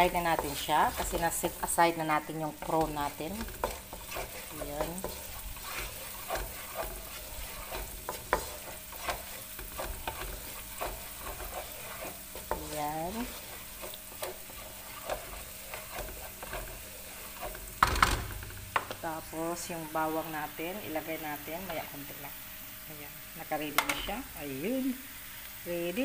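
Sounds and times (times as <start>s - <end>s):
wooden spatula scraping pan: 0.0s - 19.0s
onion sizzling in hot oil: 0.0s - 26.0s.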